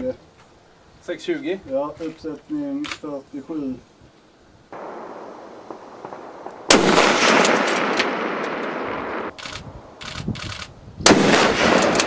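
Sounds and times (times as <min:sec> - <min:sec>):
sniper rifle shot echoing: 0:04.7 - 0:10.0, 0:11.0 - 0:12.0.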